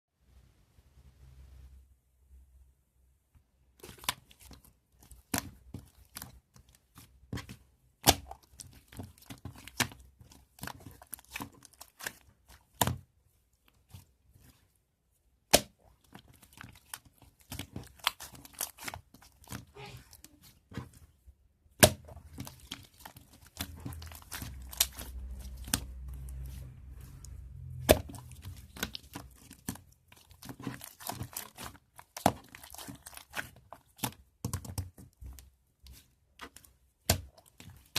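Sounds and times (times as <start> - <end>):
crinkling rustles: 22.1 - 37.9.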